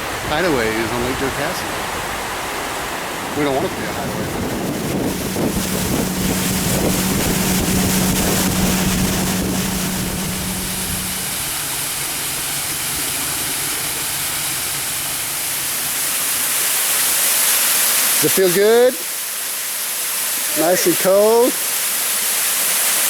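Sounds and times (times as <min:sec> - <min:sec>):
water rushing: 0:00.0 - 0:23.0
wind: 0:00.0 - 0:23.0
motorboat engine humming: 0:01.2 - 0:17.4.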